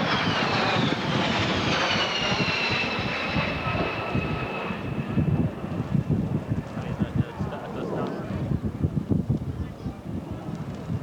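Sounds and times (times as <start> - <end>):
jet airliner flying past: 0.0 - 8.6.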